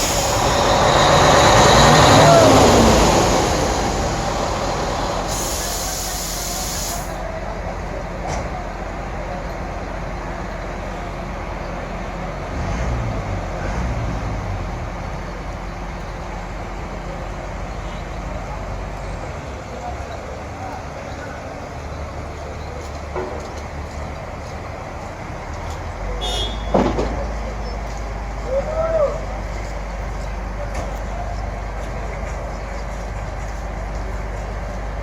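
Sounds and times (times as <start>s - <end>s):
compressed air hiss: 0.0s - 1.2s, 5.2s - 7.2s
diesel engine running: 0.0s - 35.0s.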